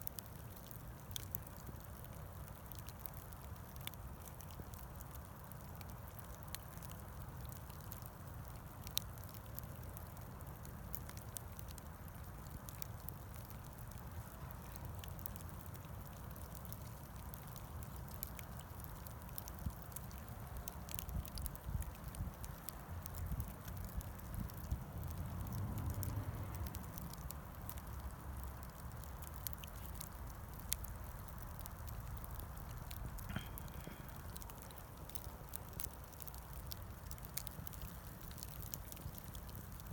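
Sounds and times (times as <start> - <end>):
bonfire crackling and popping: 0.0 - 39.9
low steady rumble: 19.4 - 39.9.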